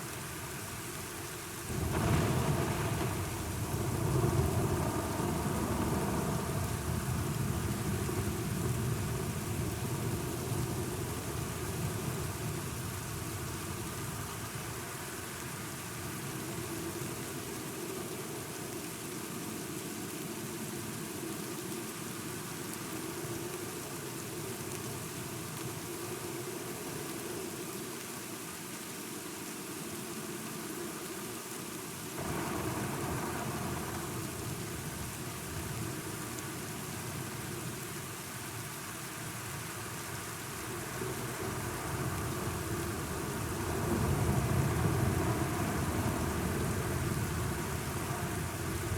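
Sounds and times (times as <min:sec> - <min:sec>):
heavy rain: 0:00.0 - 0:48.9
thunder rumble: 0:01.7 - 0:13.5, 0:32.2 - 0:37.8, 0:40.5 - 0:48.9.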